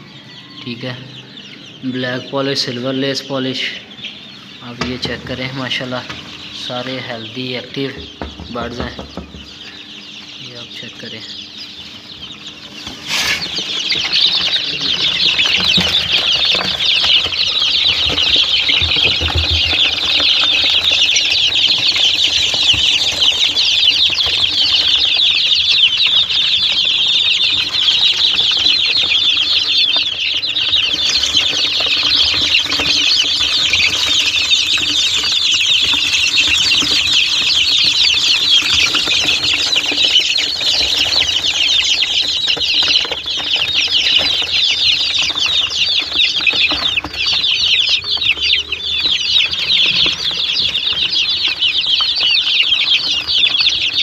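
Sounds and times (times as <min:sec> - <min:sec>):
chickens peeping chatter: 0:00.0 - 0:54.0.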